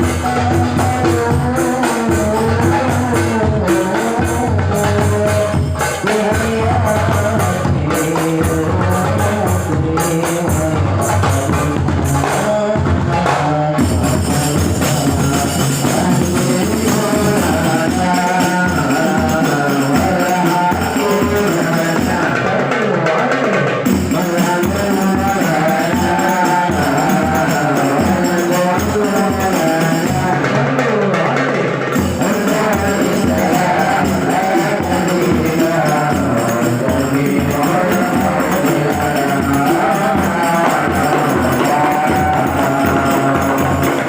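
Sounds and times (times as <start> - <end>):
frame drums beating: 0.0 - 44.0
person singing ornamented melody: 13.8 - 22.1, 32.1 - 44.0.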